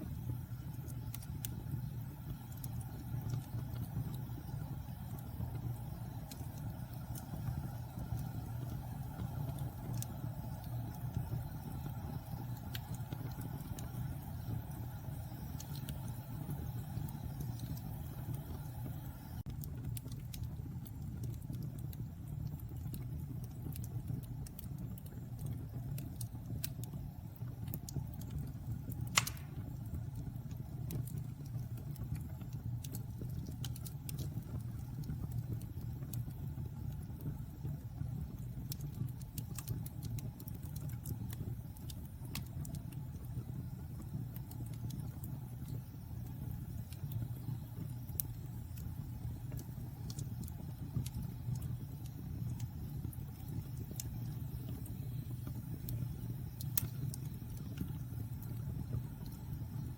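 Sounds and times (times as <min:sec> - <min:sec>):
fire burning in fireplace: 0:00.0 - 0:59.9
fire crackles: 0:00.0 - 0:59.9
loud sharp pop: 0:29.2 - 0:29.6.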